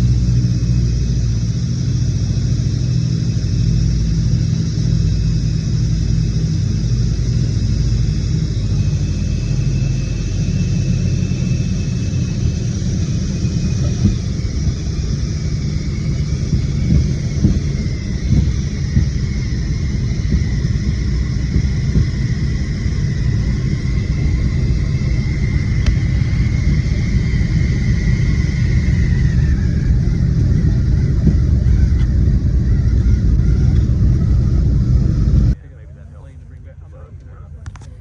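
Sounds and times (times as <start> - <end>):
propeller plane engines rumbling: 0.0 - 38.0.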